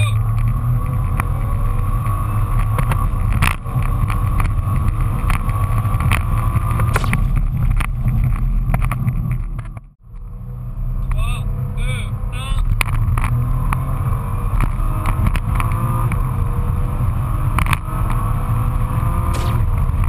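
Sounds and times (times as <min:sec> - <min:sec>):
car engine at full throttle: 0:00.0 - 0:20.0
road and wind noise: 0:00.0 - 0:20.0.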